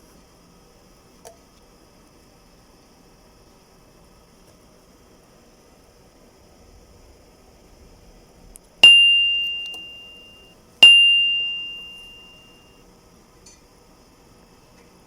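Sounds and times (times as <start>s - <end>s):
small bell ringing: 8.8s - 12.7s.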